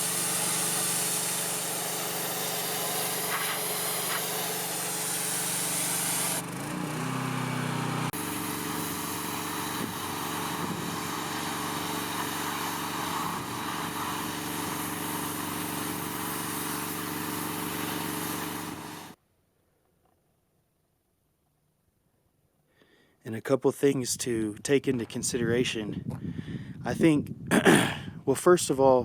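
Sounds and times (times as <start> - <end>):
high-pressure spray hissing on wood: 0.0 - 6.4, 8.1 - 19.2
pressure washer engine running: 0.0 - 19.2.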